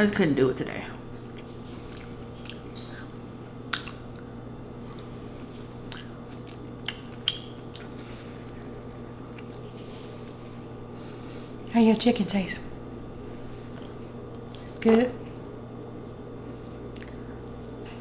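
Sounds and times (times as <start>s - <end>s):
steady low hum: 0.0s - 18.0s
person chewing food: 1.2s - 11.7s, 13.2s - 15.5s, 16.5s - 18.0s.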